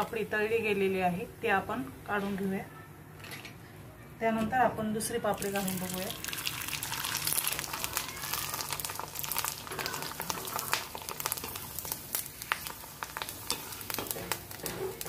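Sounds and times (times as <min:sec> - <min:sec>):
food frying in hot oil: 0:05.4 - 0:15.0
crackling pops: 0:07.2 - 0:15.0.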